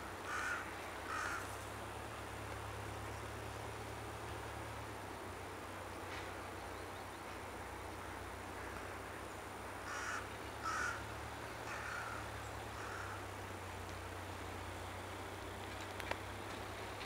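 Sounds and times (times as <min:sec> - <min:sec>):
bird calling: 0:00.3 - 0:01.5, 0:09.9 - 0:13.4.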